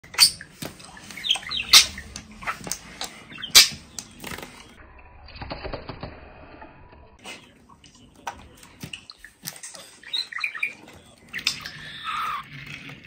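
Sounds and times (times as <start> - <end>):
parakeet chirping and squawking: 0.0 - 4.2, 9.8 - 12.6
parakeet chatter: 1.0 - 3.9, 9.8 - 12.6.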